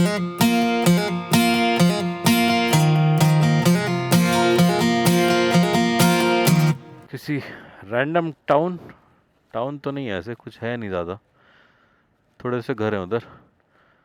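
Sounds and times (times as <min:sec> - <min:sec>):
strummed acoustic guitar: 0:00.0 - 0:07.1.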